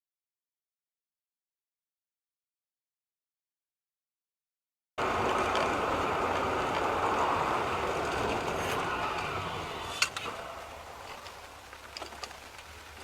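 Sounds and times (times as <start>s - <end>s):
car road and wind noise: 5.0s - 13.0s.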